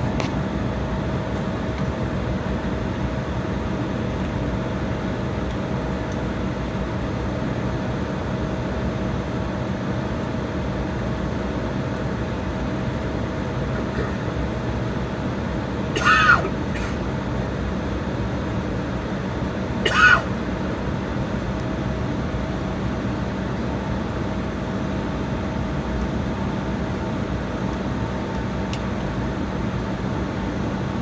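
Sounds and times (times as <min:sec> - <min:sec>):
cabin hum: 0:11.8 - 0:21.7
jet engines rumbling: 0:12.0 - 0:21.4.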